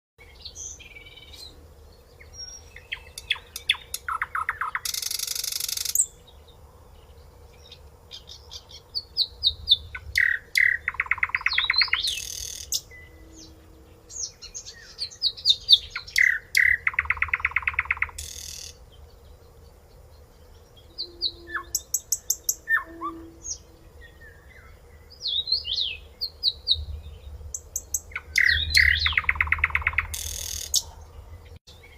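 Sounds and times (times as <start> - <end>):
nightingale singing: 0.2 - 31.9.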